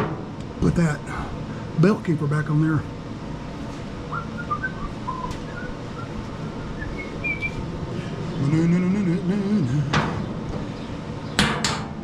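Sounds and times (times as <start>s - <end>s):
bird chirps: 4.0s - 9.3s
man humming a tune: 8.0s - 10.2s.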